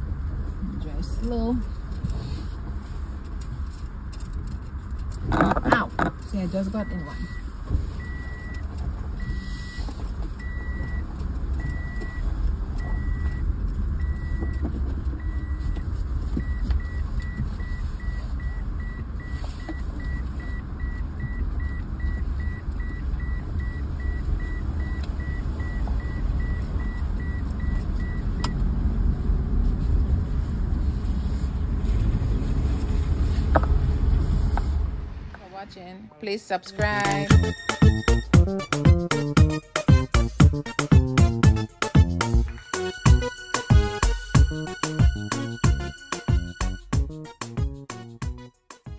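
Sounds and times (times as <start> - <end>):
car interior low rumble: 0.0 - 40.6
electronic warning beeps: 6.6 - 8.6, 9.2 - 12.2, 12.8 - 14.6, 16.4 - 28.5, 36.9 - 42.4.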